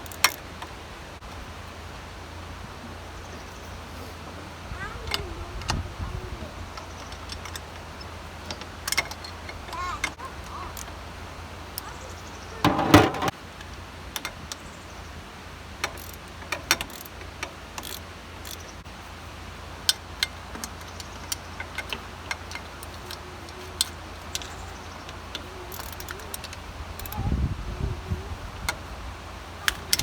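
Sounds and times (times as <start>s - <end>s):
small metal clicks and clinks: 6.7s - 11.0s, 15.8s - 18.7s, 19.9s - 27.2s, 29.6s - 30.0s
metal parts clattering: 12.6s - 13.3s.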